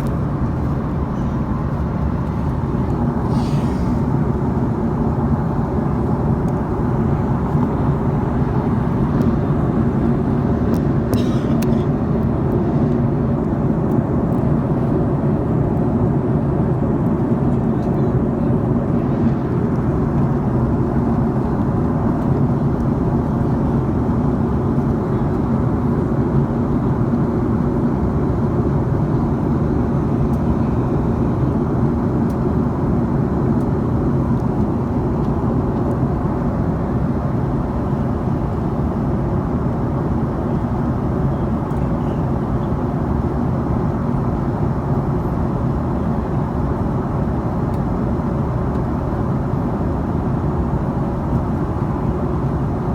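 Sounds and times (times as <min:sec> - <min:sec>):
rushing air: 0:00.0 - 0:04.8
airliner engines droning: 0:00.0 - 0:52.9.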